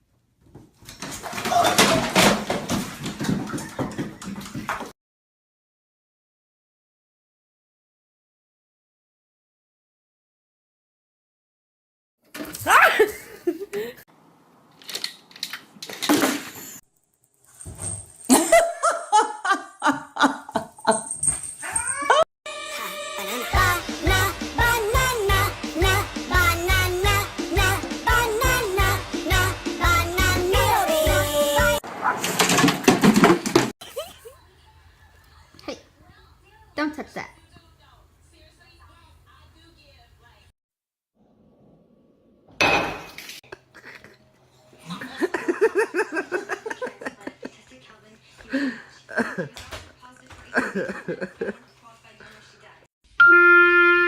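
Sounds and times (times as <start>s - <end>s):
dishes crashing and clattering: 1.0s - 4.7s, 32.1s - 33.7s, 42.6s - 43.4s
person laughing hard: 12.7s - 14.0s, 18.3s - 21.1s, 44.9s - 47.2s.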